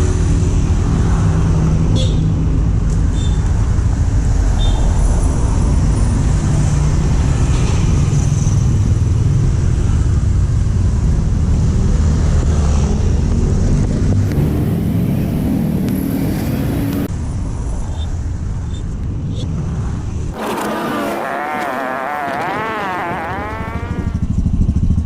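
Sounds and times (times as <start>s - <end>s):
motorcycle engine running: 20.4s - 25.0s.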